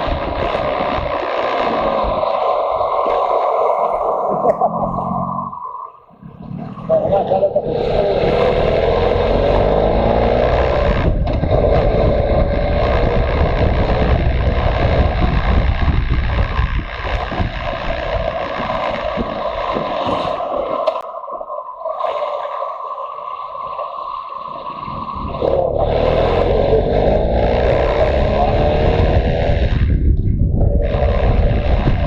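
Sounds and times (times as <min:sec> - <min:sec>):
motorcycle engine running: 0:00.0 - 0:02.9, 0:06.9 - 0:19.8, 0:25.4 - 0:32.0
wind rushing: 0:00.0 - 0:32.0.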